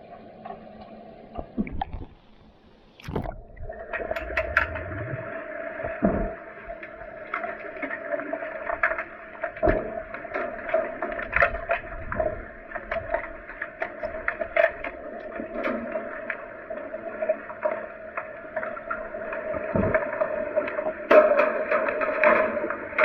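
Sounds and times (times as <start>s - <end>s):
muffled underwater noise: 0.0s - 14.3s
underwater clicks and knocks: 0.4s - 8.0s, 8.6s - 16.4s, 18.9s - 23.0s.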